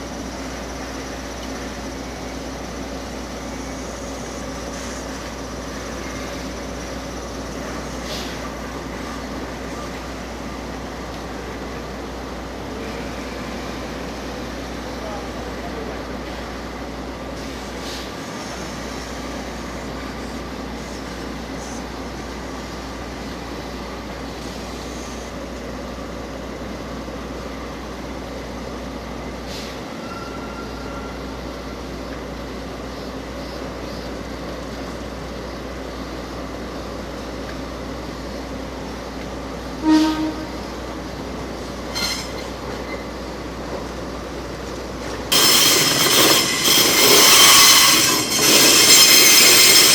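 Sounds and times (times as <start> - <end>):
freight train running: 0.0 - 49.9
loud rail noise: 0.0 - 49.9.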